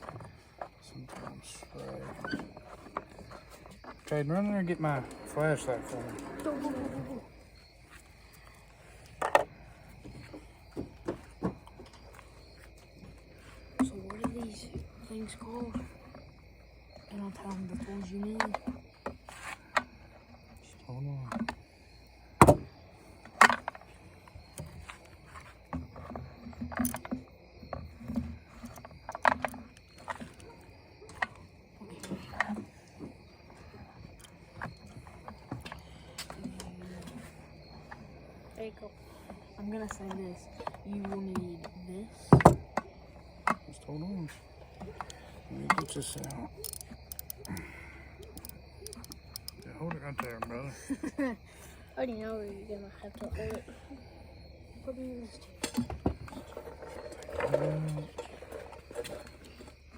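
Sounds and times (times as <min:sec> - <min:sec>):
handling knocks and clicks: 0:23.3 - 0:33.2, 0:44.7 - 0:50.6.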